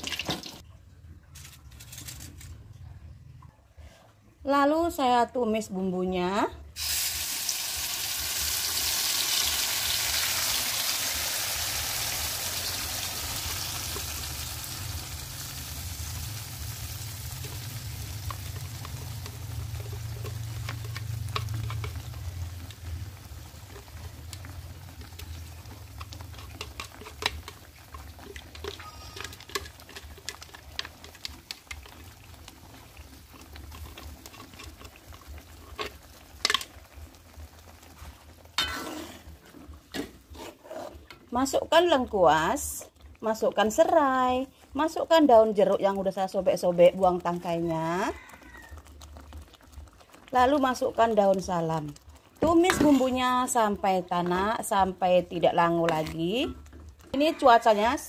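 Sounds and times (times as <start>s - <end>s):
paste sizzling in hot oil: 6.8s - 58.0s.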